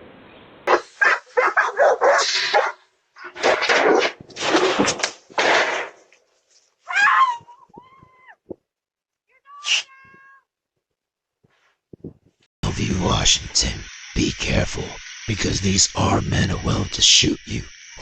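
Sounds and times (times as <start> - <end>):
dog barking: 0.7 - 4.2
dog whining: 6.9 - 8.5.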